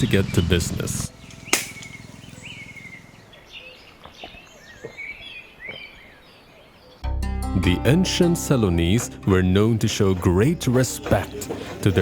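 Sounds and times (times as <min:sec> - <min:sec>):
birds chirping and calling: 0:00.0 - 0:07.0
sharp click: 0:01.3 - 0:02.0.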